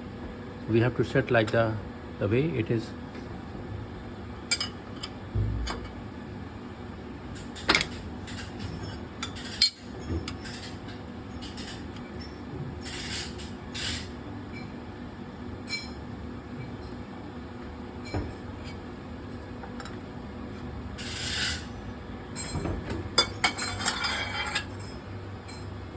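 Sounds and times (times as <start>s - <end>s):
steady background hum: 0.0s - 25.9s.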